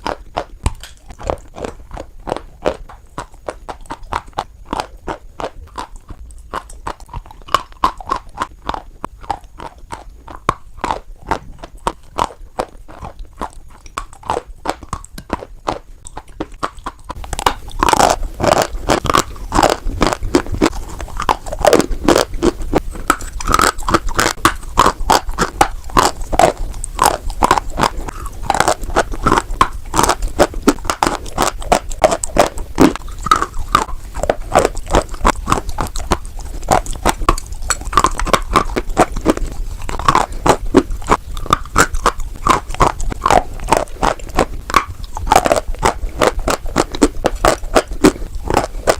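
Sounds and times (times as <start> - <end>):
chewing chalk crunching: 0.0 - 48.9.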